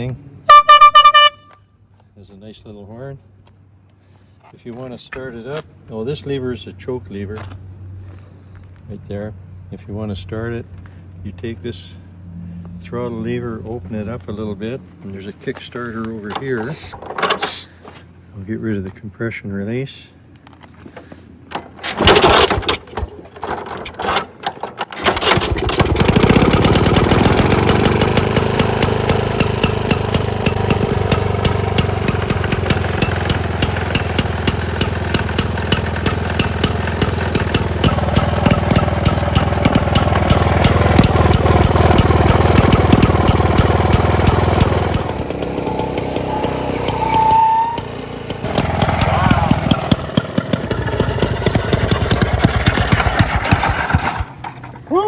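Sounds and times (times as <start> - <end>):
two-stroke engine running: 21.6 - 24.2, 24.9 - 54.8.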